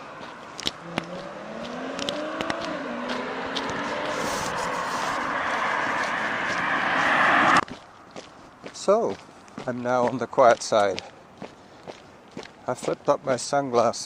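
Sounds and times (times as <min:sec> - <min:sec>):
car engine hum: 0:00.0 - 0:07.6
tyre noise on road: 0:00.0 - 0:11.0.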